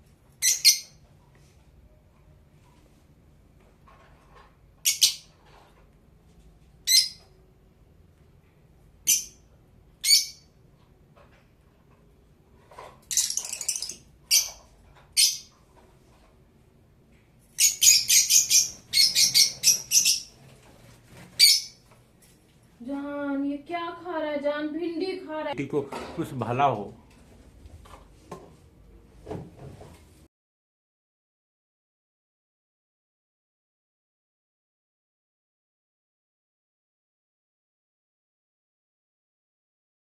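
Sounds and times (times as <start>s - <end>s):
lovebird chirping: 0.4s - 1.0s, 4.8s - 5.3s, 9.0s - 9.4s, 10.0s - 10.5s, 13.1s - 14.6s, 17.6s - 20.4s, 21.4s - 21.8s.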